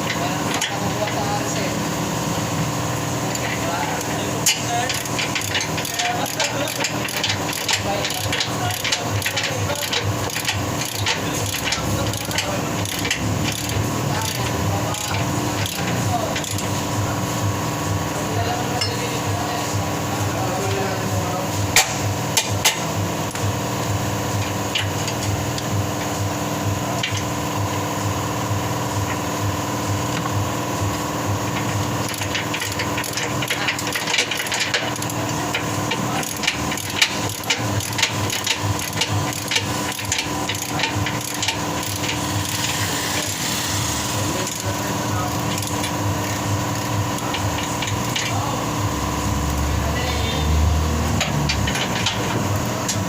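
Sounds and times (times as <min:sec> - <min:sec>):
steady machine hum: 0:00.0 - 0:53.0.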